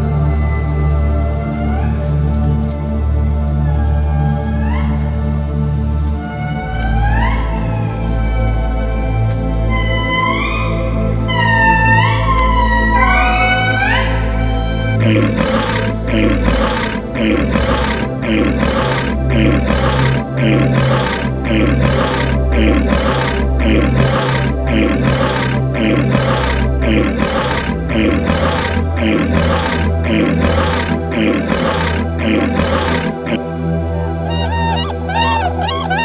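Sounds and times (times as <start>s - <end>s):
animal roaring calls: 15.0s - 33.5s.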